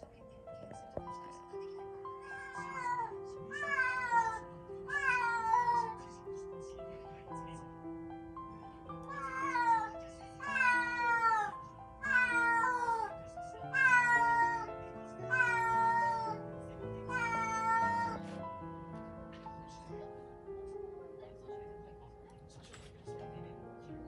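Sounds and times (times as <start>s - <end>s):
background music of held notes: 0.0s - 24.0s
cat meowing: 2.2s - 6.0s, 9.1s - 16.4s, 17.0s - 18.4s.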